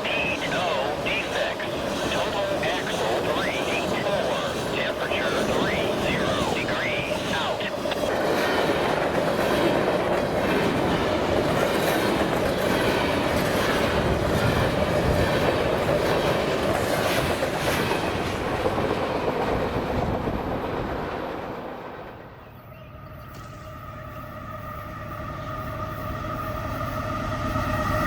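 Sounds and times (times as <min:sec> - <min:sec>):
freight train wheels clacking: 0:00.0 - 0:22.0.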